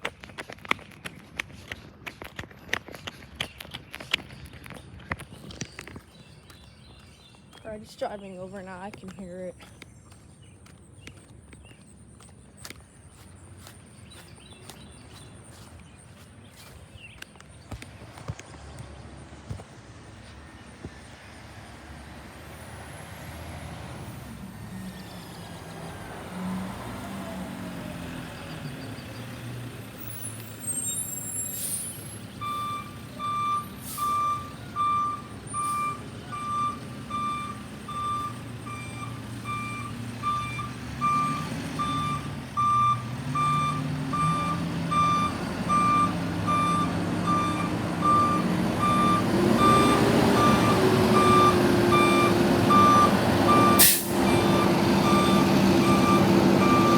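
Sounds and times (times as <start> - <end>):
garbage truck engine: 19.4 - 56.9
reversing alarm beeping: 32.4 - 56.9.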